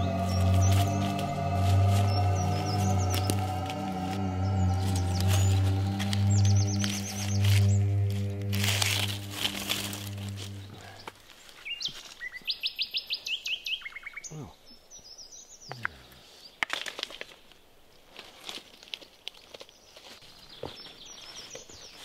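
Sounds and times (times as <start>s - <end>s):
bird calling high repeated notes: 0.0s - 10.9s
low music drone: 0.0s - 11.2s
dry leaves crackling: 0.0s - 12.5s, 16.6s - 22.0s.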